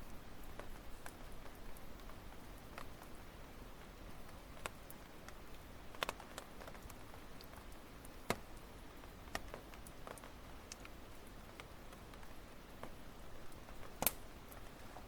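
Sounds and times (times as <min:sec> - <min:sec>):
faint steady hiss: 0:00.0 - 0:15.0
wood fire crackling: 0:00.0 - 0:15.0
sharp pops from firewood: 0:14.0 - 0:14.2.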